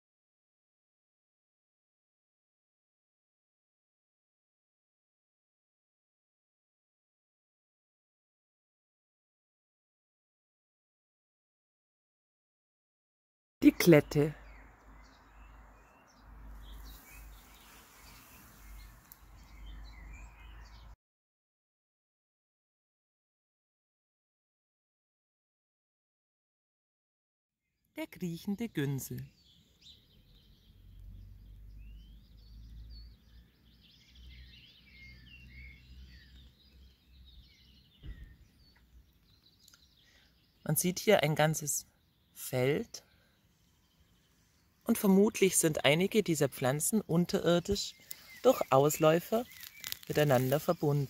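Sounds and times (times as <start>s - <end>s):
small birds chirping: 13.6s - 21.0s, 28.0s - 51.0s.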